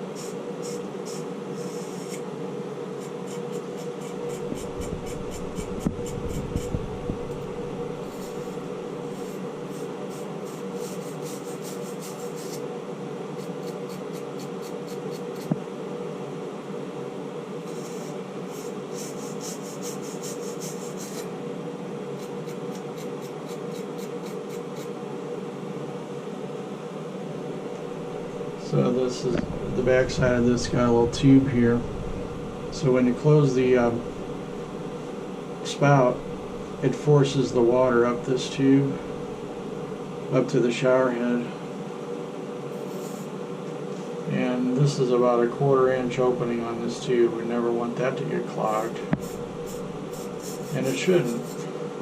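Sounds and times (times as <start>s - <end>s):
rhythmic rasping scrubbing of pipe: 0.0s - 2.2s, 3.0s - 12.6s, 17.7s - 21.3s, 48.7s - 51.7s
steady low hum: 0.0s - 52.0s.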